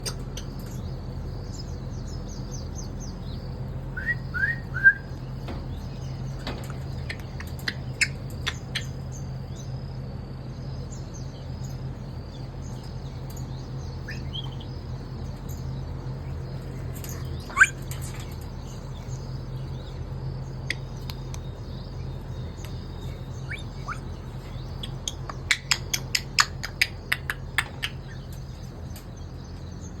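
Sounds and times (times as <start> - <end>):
steady low hum: 0.0 - 30.0
bird chirps and whistles: 4.0 - 5.2, 17.5 - 17.8, 23.4 - 24.2.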